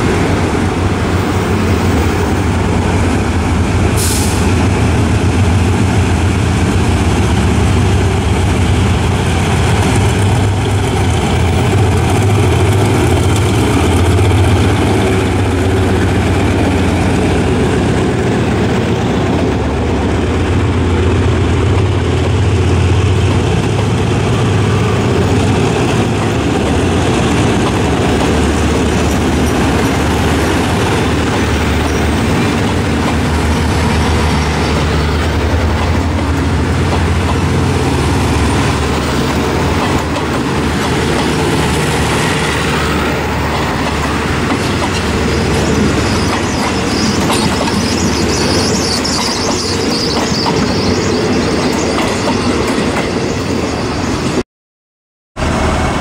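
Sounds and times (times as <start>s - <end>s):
locomotive engine drone: 0.0s - 54.4s, 55.4s - 56.0s
train wheels on rails: 0.0s - 54.4s, 55.4s - 56.0s
high wheel squeal: 44.9s - 54.2s.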